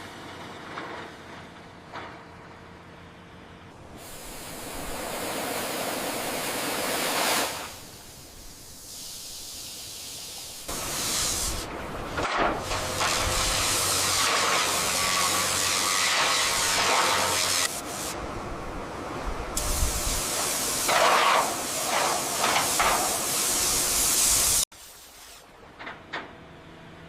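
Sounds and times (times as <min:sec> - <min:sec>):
high-pressure jet spraying: 0:03.9 - 0:18.2, 0:19.6 - 0:25.4.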